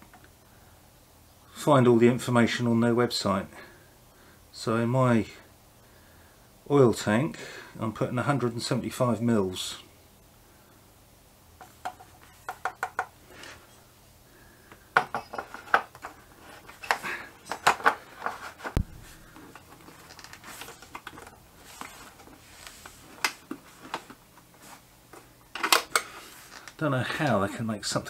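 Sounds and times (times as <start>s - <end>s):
low thud: 18.8s - 19.1s.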